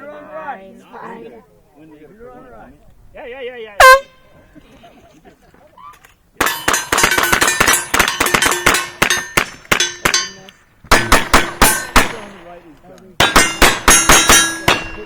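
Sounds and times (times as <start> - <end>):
steel plates clanging: 6.4 - 12.2, 13.2 - 15.0
rapid gunfire: 10.9 - 12.3, 13.2 - 14.9.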